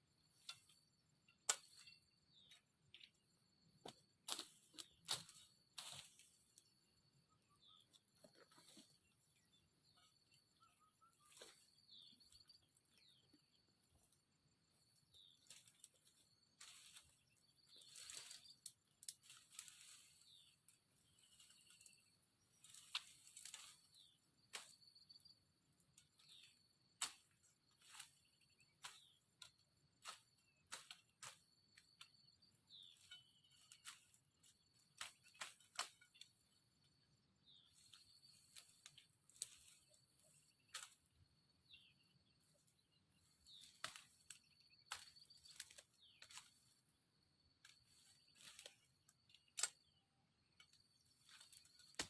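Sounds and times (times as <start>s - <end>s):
faint high insect-like tone: 0.0s - 52.0s
brush and branches snapping and rustling: 3.8s - 6.7s, 11.3s - 13.2s, 15.1s - 25.1s, 26.0s - 36.5s, 37.5s - 41.1s, 41.8s - 46.9s, 47.5s - 49.9s, 50.6s - 52.0s
bird chirps: 7.3s - 13.7s, 32.1s - 33.9s.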